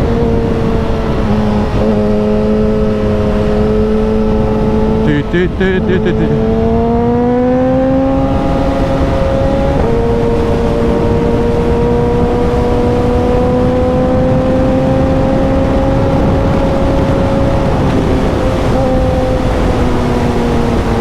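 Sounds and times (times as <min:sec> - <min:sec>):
wind rush on microphone: 0:06.4 - 0:21.0.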